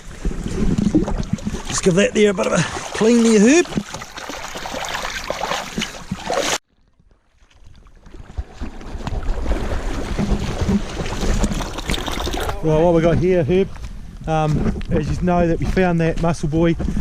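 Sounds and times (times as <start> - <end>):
rushing wind and water: 0.0 - 6.6, 8.1 - 13.4.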